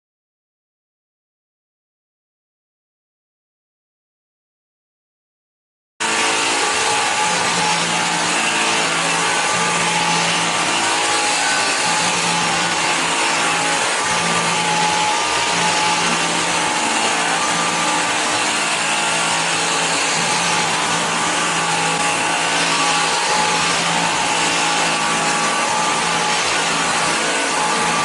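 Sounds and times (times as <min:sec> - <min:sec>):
stick vacuum whirring: 0:06.0 - 0:28.0.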